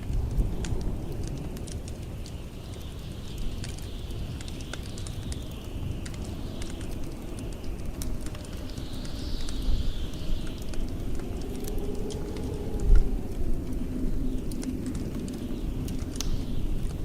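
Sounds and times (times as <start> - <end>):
blizzard wind whistling: 0.0 - 17.0
wood fire crackling and popping: 0.0 - 17.0.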